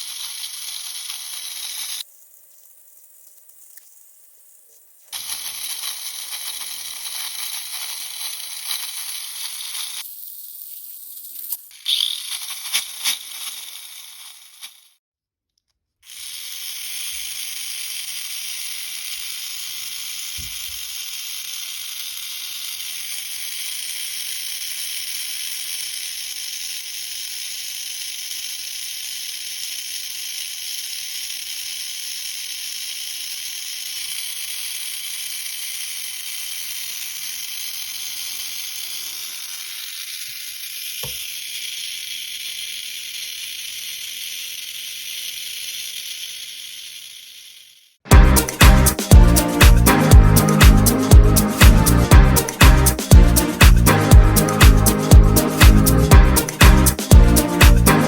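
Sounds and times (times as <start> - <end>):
small electric motor whining: 0.0 - 2.1, 5.2 - 15.0, 16.1 - 48.1.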